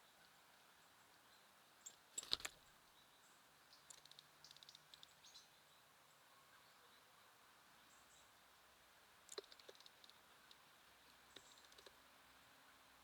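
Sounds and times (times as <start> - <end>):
birds pecking at seed: 9.2 - 12.0.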